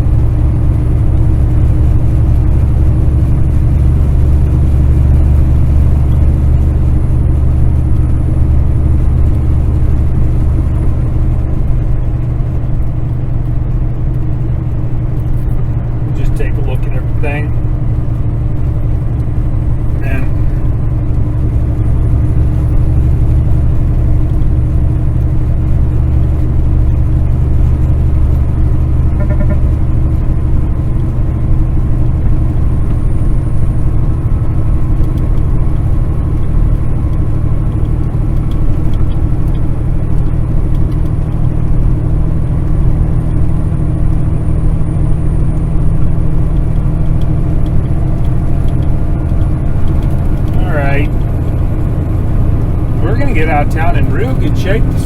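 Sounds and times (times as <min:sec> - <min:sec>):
truck diesel engine drone: 0:00.0 - 0:55.0
short tones: 0:29.1 - 0:29.8.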